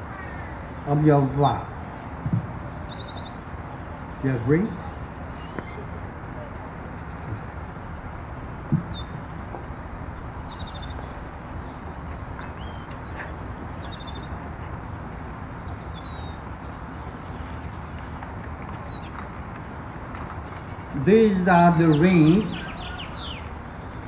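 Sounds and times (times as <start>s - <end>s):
birds chirping and calling: 0.0s - 24.0s
steady background hiss: 0.0s - 24.0s
low thump: 8.6s - 9.8s.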